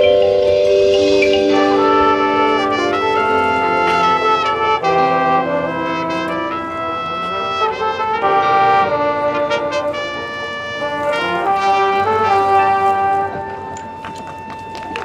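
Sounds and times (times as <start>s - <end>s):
percussion strikes: 0.0s - 6.9s, 10.9s - 15.0s
brass section playing chords: 0.0s - 15.0s.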